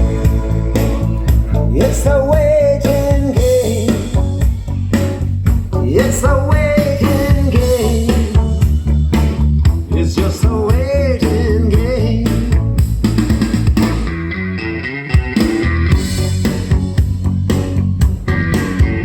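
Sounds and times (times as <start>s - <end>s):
pop-rock song over loudspeakers: 0.0s - 19.0s.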